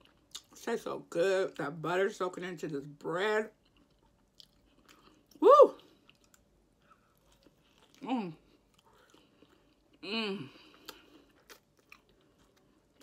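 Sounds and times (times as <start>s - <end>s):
chewing with wet mouth clicks: 3.6s - 8.0s, 10.7s - 13.0s
woman exclaiming woo: 5.4s - 5.8s.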